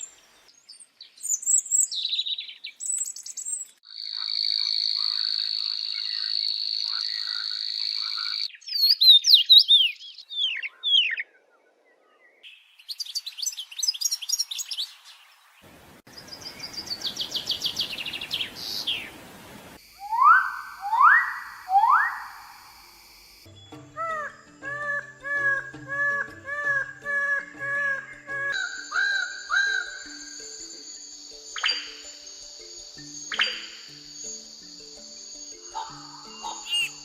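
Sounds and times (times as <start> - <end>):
upward-sweeping bird calls: 1.2 - 11.4, 16.2 - 22.9, 23.9 - 37.0
looping whistled bird notes: 19.9 - 22.9, 23.5 - 37.0
high buzzing bird trill: 27.2 - 37.0
dry rattling bird trill: 28.6 - 30.7, 35.3 - 37.0
rapid bird chirps: 31.5 - 37.0.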